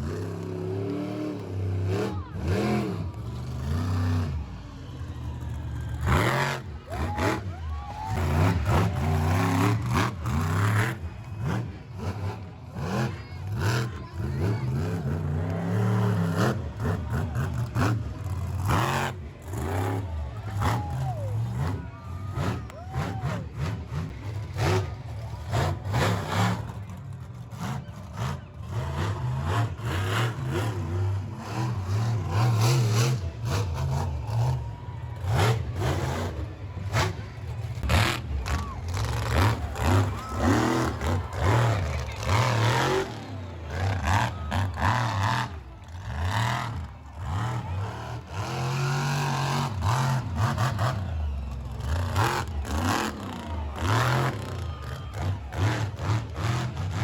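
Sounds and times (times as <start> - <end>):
large vehicle engines revving: 0.0 - 57.0.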